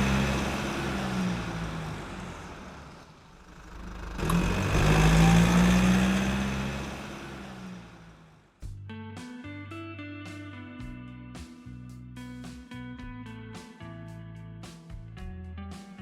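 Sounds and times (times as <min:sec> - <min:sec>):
car engine exhaust note: 0:00.0 - 0:08.8.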